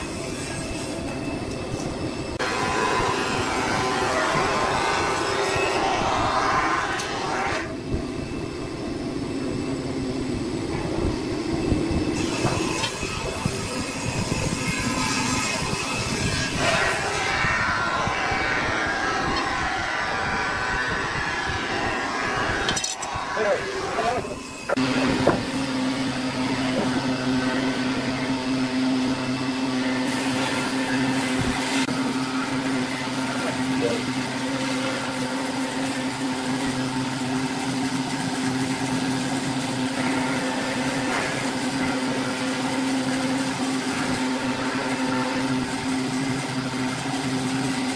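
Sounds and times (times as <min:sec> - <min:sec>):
wood lathe motor humming: 0:02.4 - 0:07.6
wood lathe motor hum: 0:02.4 - 0:07.7, 0:12.2 - 0:47.9.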